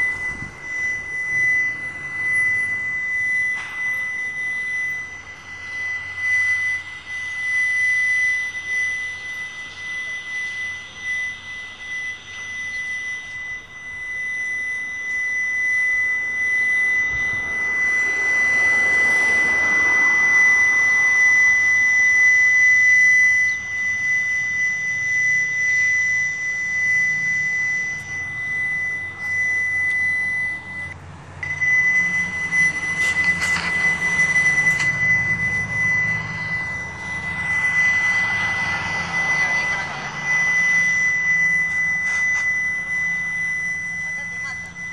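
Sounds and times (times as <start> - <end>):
high-pitched buzzing hum: 0.0 - 44.9
rushing noise: 32.1 - 42.7.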